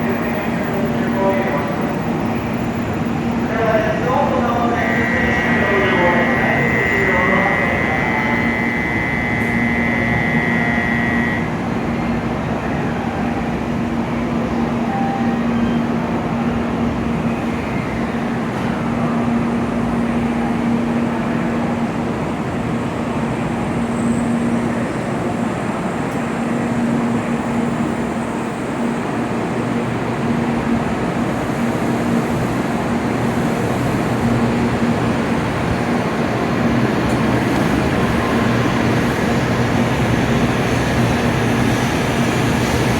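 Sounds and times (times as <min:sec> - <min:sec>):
train rumble and hum: 0:00.0 - 0:42.9
high steady tone: 0:03.6 - 0:11.6.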